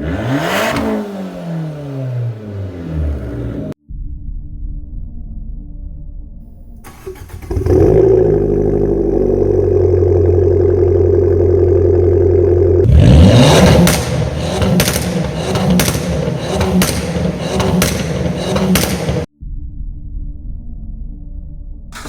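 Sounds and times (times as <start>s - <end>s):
car engine revving: 0.0s - 3.8s, 6.9s - 19.3s
exhaust cracks: 6.9s - 19.3s.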